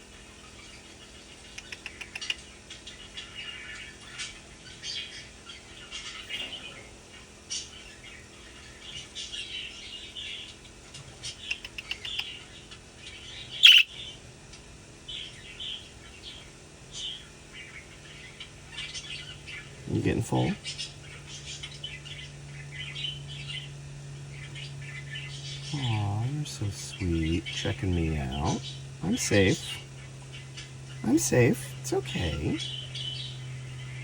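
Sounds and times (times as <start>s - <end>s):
budgerigar chirping: 13.4s - 14.1s.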